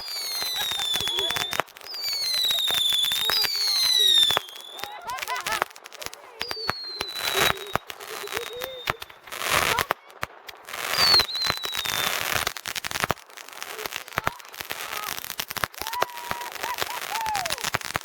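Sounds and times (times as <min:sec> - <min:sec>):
falling firework whistle: 0:00.0 - 0:05.7, 0:06.4 - 0:09.9, 0:10.8 - 0:12.6, 0:14.9 - 0:18.0
fireworks popping and banging: 0:00.0 - 0:18.0.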